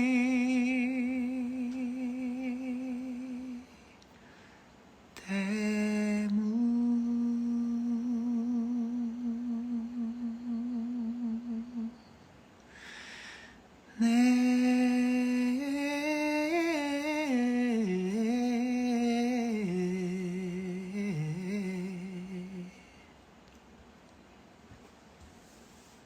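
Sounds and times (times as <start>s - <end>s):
man singing long notes: 0.0s - 4.0s, 5.2s - 12.0s, 13.9s - 23.0s
man breathing: 12.7s - 13.7s.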